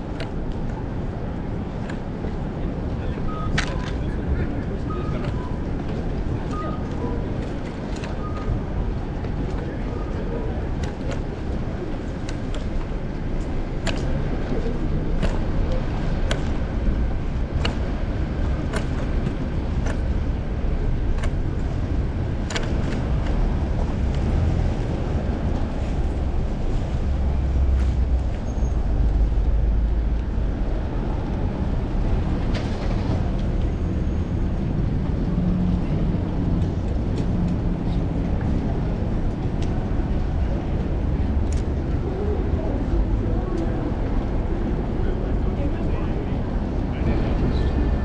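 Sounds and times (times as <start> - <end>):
road traffic: 0.0 - 48.0
wind rumble on microphone: 0.0 - 48.0
sharp clicks and knocks: 12.2 - 14.5, 15.1 - 20.3, 20.9 - 23.4.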